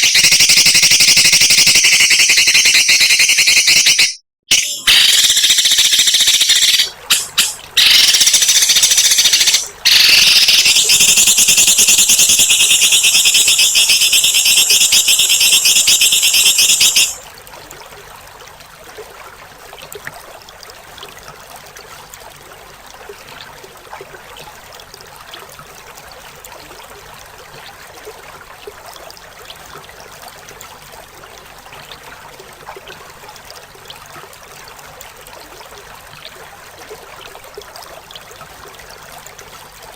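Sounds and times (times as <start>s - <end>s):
songbird rasping call: 0.0s - 17.2s.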